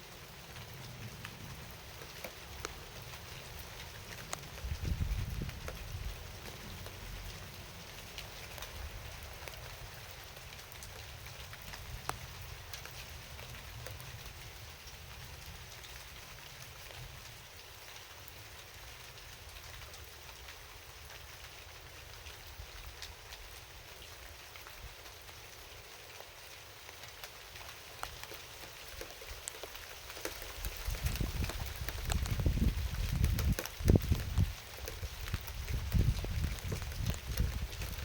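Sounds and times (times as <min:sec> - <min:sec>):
steady rain hiss: 0:00.0 - 0:38.0
raindrops tapping: 0:00.8 - 0:18.0, 0:26.2 - 0:38.0.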